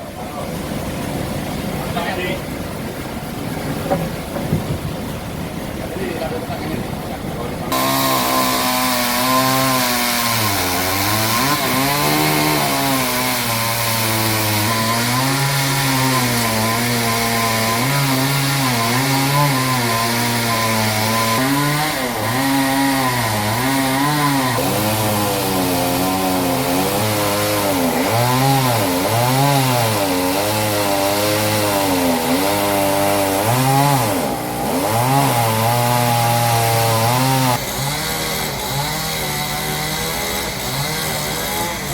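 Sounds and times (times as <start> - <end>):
chainsaw cutting log: 7.7 - 41.9.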